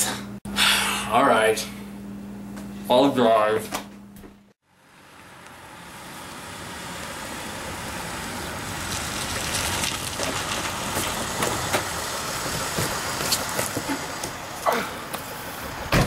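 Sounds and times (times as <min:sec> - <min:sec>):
car engine idling: 0:04.6 - 0:16.0.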